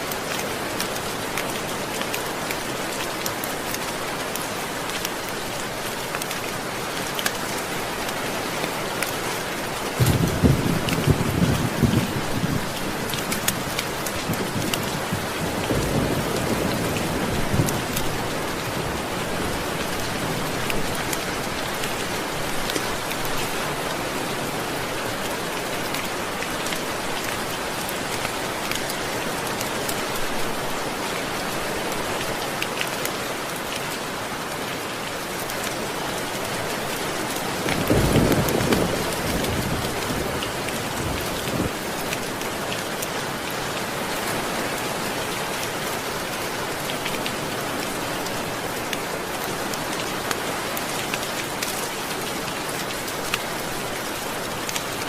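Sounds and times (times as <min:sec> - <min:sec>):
steady rain: 0:00.0 - 0:55.0
low rumble of thunder: 0:10.0 - 0:12.8, 0:37.7 - 0:41.8.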